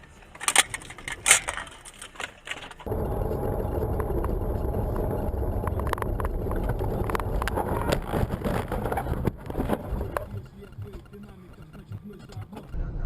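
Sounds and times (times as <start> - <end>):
car driving rumble: 0.0 - 13.0.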